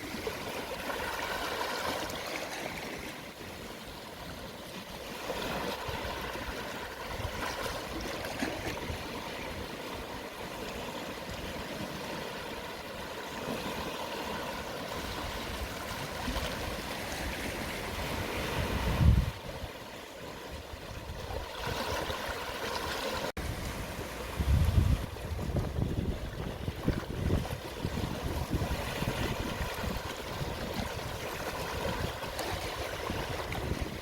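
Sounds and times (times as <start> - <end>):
sea waves washing onto shore: 0.0 - 34.0.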